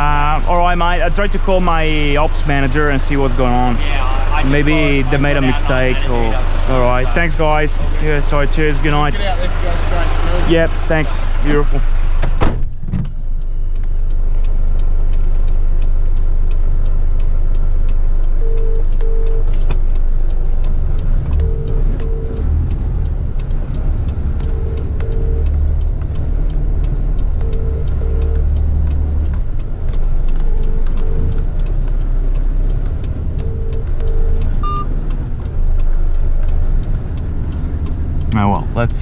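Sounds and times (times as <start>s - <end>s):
truck engine drone: 0.0s - 39.0s
short beeps: 18.4s - 19.6s, 21.4s - 22.5s, 24.4s - 25.6s, 27.4s - 28.6s, 30.4s - 31.3s, 33.4s - 34.9s.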